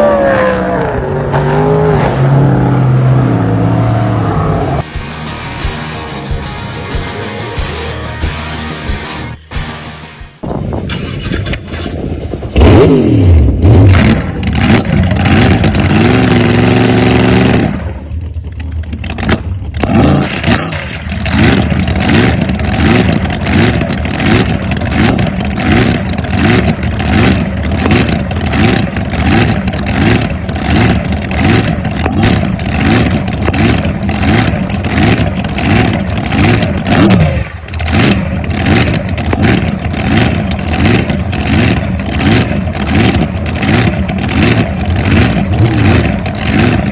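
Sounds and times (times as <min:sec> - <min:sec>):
boat engine running loud: 0:12.6 - 0:46.9.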